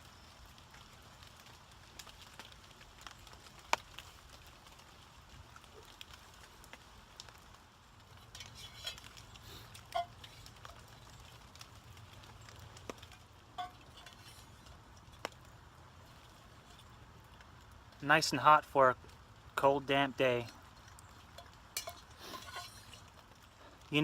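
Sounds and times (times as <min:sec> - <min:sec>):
spoon clinking on metal pot: 0:21.3 - 0:23.0.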